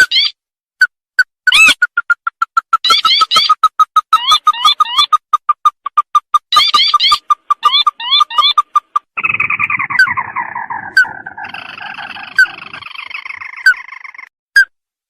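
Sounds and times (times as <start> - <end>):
descending rattling bird trill: 6.5 - 14.3
bird short rising notes: 9.2 - 14.3.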